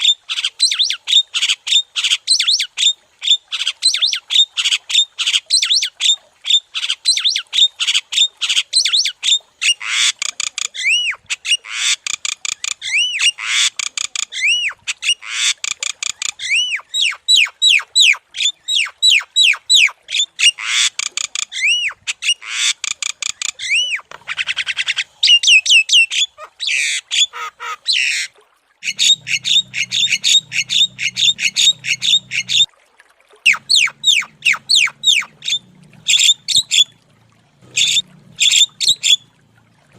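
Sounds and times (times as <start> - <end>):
myna chattering and squawking: 28.8 - 32.7, 33.5 - 36.9, 37.6 - 39.2
faint low hum: 33.5 - 39.9.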